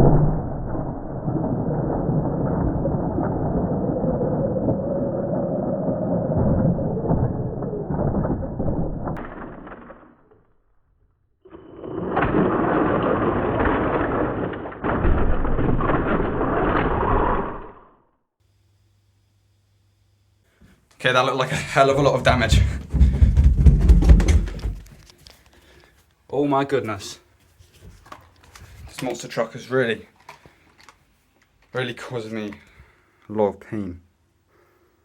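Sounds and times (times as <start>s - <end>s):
toy truck crashing into bricks: 9.2s - 10.5s, 12.0s - 17.7s.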